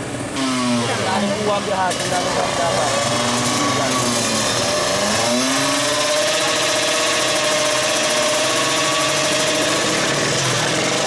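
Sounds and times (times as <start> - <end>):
two-stroke motorcycle engine revving: 0.0 - 11.0.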